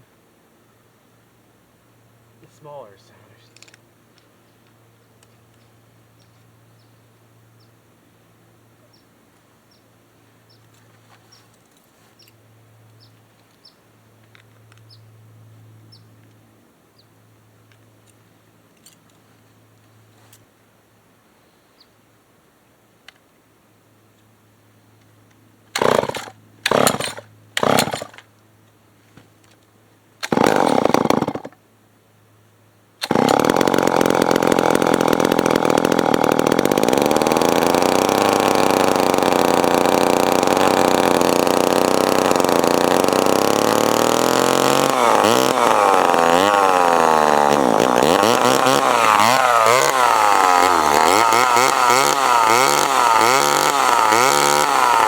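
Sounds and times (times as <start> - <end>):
chainsaw starting and running: 25.7 - 28.3, 30.2 - 31.6, 33.0 - 55.0.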